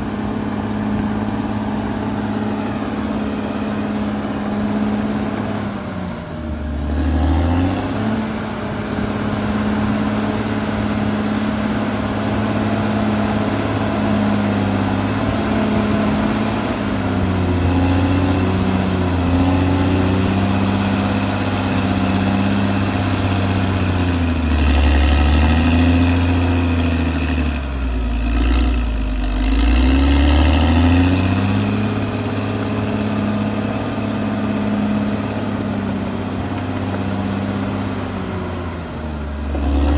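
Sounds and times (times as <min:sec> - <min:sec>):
bulldozer diesel engine under load: 0:00.0 - 0:39.9.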